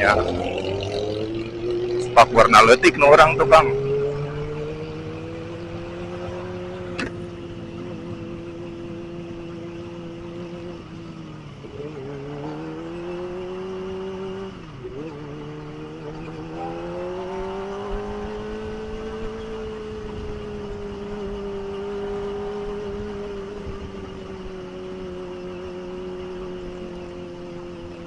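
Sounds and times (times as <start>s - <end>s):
motorcycle engine cruising: 0.0s - 28.0s
wind noise: 16.0s - 25.4s.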